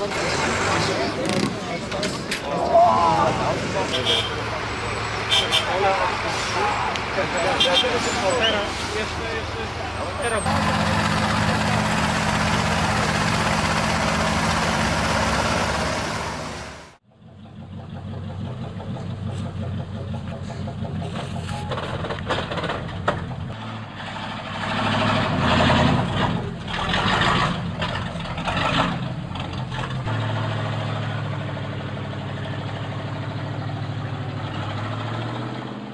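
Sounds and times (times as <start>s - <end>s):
heavy truck engine under load: 0.0s - 35.9s
knocks and clatter: 18.6s - 23.6s.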